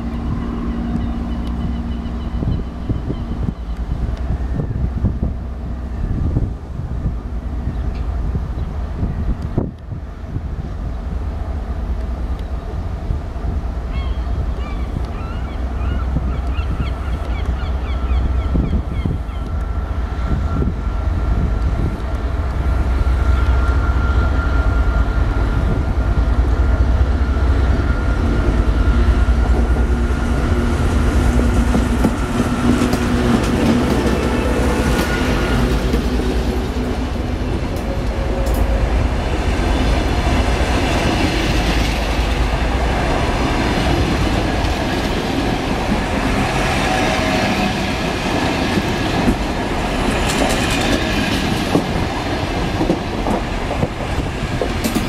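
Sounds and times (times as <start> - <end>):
diesel locomotive engine rumbling: 0.0 - 55.0
train wheels clacking over rail joints: 31.3 - 38.8, 43.6 - 55.0.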